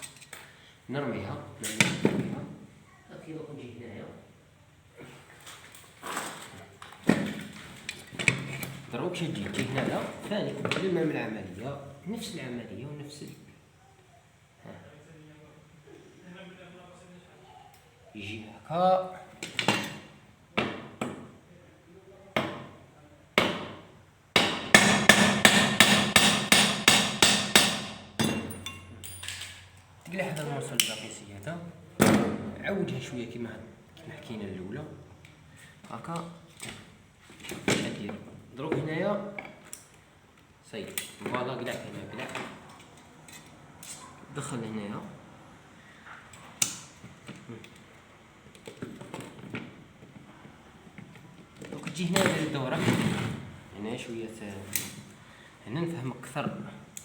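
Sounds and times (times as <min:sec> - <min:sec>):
clicks of parts handled by hand: 0:00.0 - 0:00.5, 0:28.5 - 0:31.1, 0:39.4 - 0:41.4, 0:46.3 - 0:47.9, 0:54.7 - 0:55.1
hammer striking metal part: 0:24.4 - 0:29.3.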